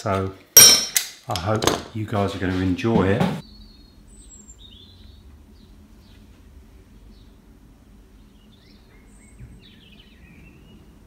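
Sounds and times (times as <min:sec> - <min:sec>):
low background rumble: 0:03.4 - 0:11.0
small birds chirping: 0:03.4 - 0:11.0.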